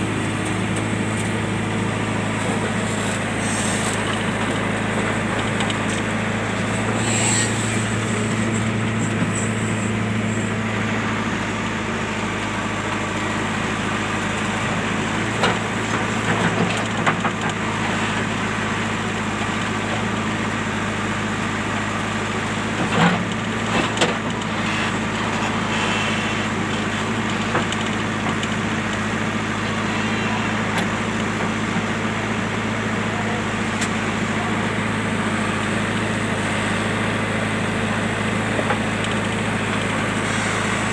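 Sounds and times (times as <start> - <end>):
diesel engine running: 0.0 - 40.9
clunks and knocks: 15.4 - 17.6.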